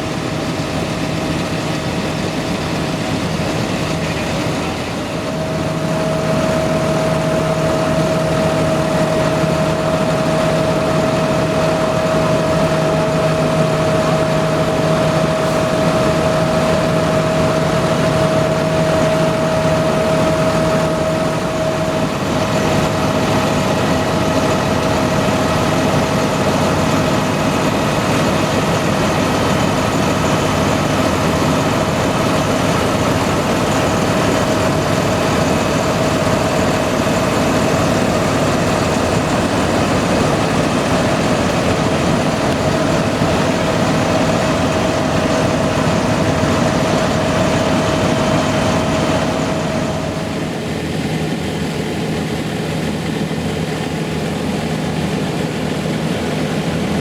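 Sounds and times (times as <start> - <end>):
thin steady whine: 0.0 - 57.0.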